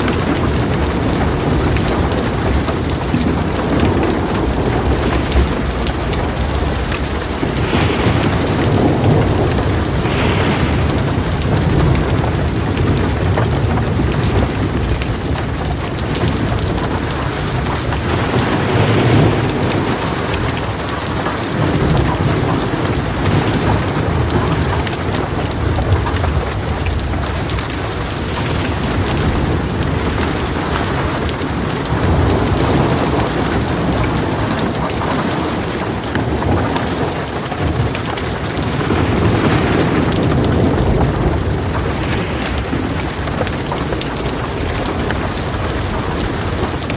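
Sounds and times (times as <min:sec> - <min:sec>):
heavy rain on a metal roof: 0:00.0 - 0:46.9
thunder rumbling: 0:00.0 - 0:46.9.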